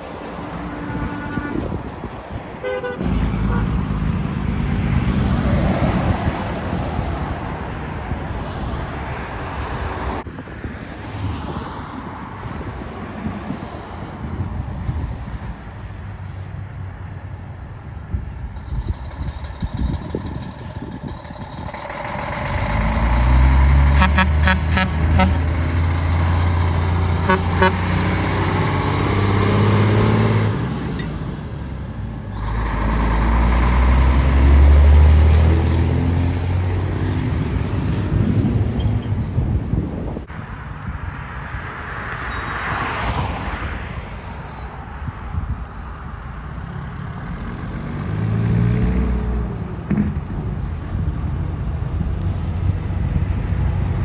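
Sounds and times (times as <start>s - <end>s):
truck engine rumbling: 0.0s - 10.5s, 12.0s - 40.7s
light traffic passing: 0.0s - 54.0s.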